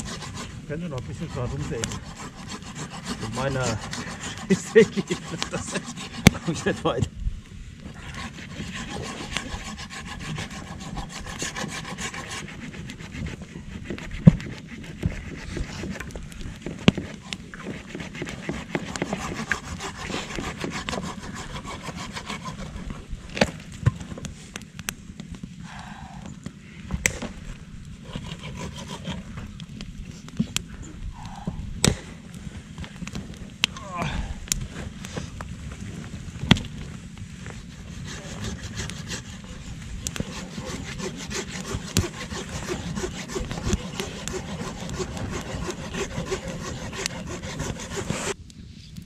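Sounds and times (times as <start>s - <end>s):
hand saw cutting wood: 0.0s - 7.1s, 7.9s - 24.2s, 28.0s - 29.4s, 37.7s - 48.4s.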